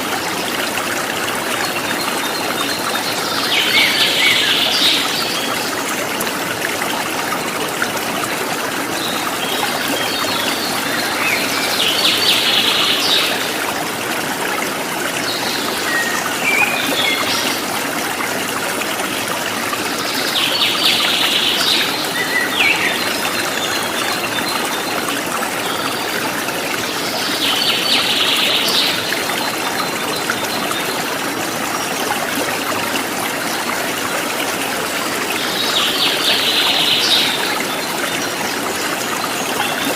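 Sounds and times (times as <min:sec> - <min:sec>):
stream running water: 0:00.0 - 0:39.9.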